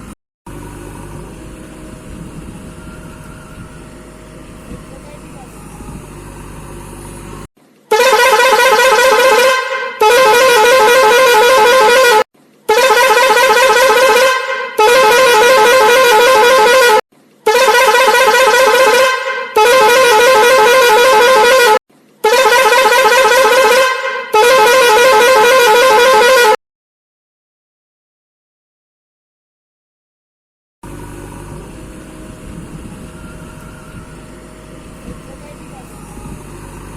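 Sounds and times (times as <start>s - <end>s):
vehicle horn blasts: 7.9s - 26.6s.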